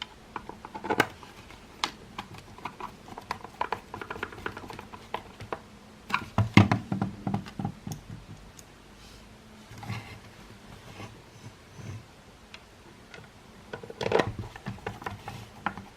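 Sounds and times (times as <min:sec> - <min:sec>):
plastic parts clicking and tapping: 0:00.0 - 0:08.7, 0:12.5 - 0:15.9.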